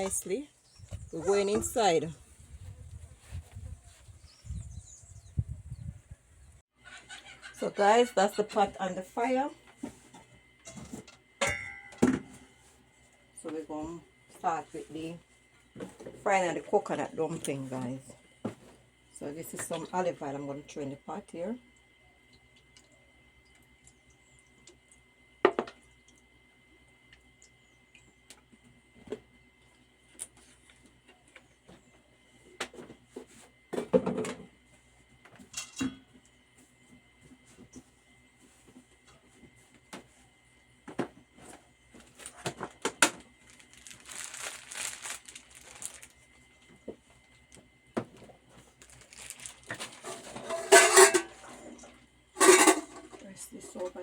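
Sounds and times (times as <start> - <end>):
pots and utensils knocking: 11.4 - 12.3, 50.4 - 51.4
crinkly rustling: 41.9 - 47.6, 48.2 - 51.1.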